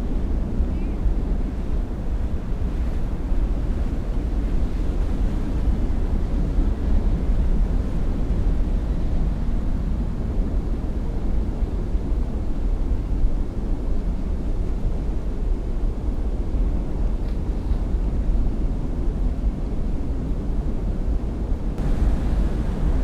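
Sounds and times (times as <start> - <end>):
wind on microphone: 0.0 - 23.0
boat engine rumbling: 21.8 - 23.0.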